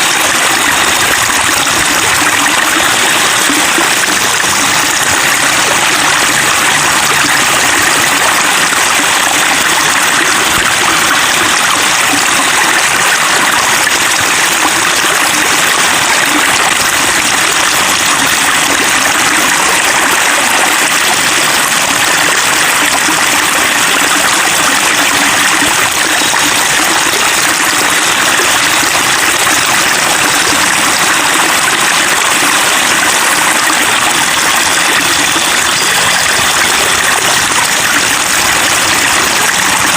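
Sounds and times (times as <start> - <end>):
water babbling over rocks: 0.0 - 39.9.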